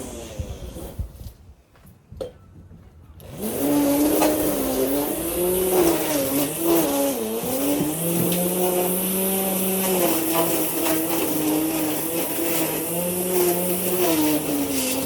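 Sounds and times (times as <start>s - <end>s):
lawn mower engine running: 3.2s - 15.0s.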